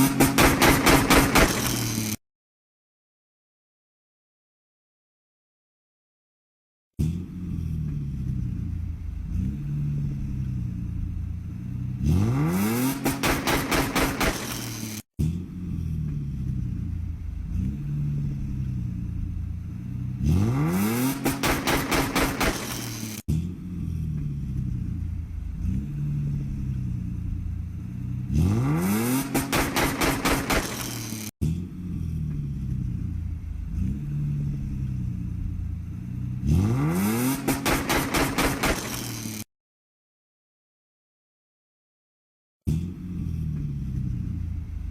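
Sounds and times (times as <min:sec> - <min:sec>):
car engine idling and revving: 0:00.0 - 0:02.2, 0:07.0 - 0:39.5, 0:42.6 - 0:44.9
loud sharp exhaust cracks: 0:00.0 - 0:02.2, 0:12.0 - 0:15.0, 0:19.2 - 0:23.2, 0:28.8 - 0:31.3, 0:37.0 - 0:39.4
car engine revving hard: 0:11.8 - 0:14.8, 0:20.1 - 0:23.2, 0:28.0 - 0:30.9, 0:36.2 - 0:39.2.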